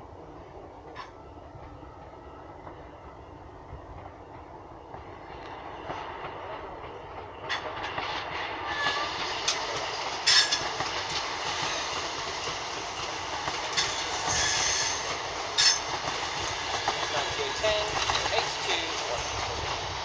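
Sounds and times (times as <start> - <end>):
train wheels clattering over rails: 3.6 - 20.0.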